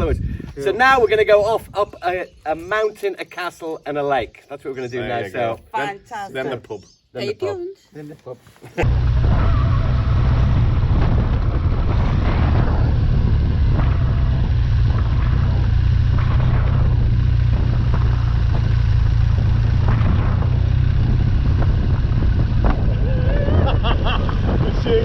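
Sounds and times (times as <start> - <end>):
wind on microphone: 0.0 - 2.8, 8.9 - 25.0
motorcycle engine running: 8.8 - 25.0.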